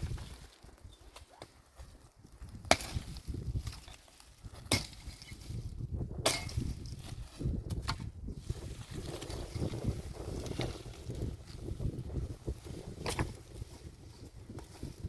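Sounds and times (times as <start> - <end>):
tool chopping wood: 2.7 - 3.9, 4.6 - 5.3, 6.2 - 6.8, 13.0 - 13.4.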